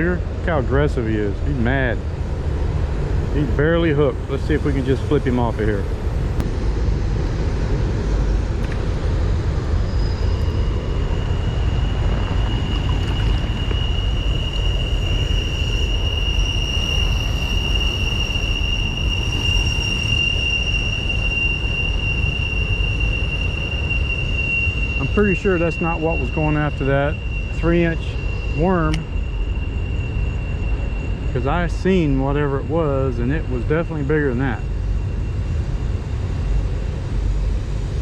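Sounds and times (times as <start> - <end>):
high continuous whine: 0.0 - 38.0
faint higher tone: 9.6 - 36.7.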